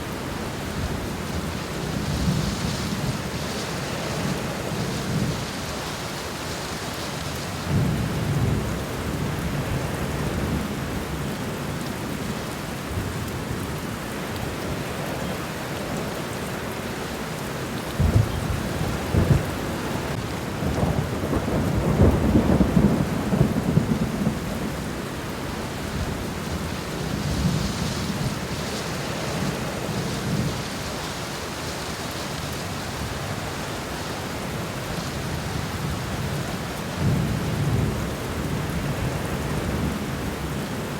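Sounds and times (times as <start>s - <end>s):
rain hissing on leaves: 0.0s - 40.9s.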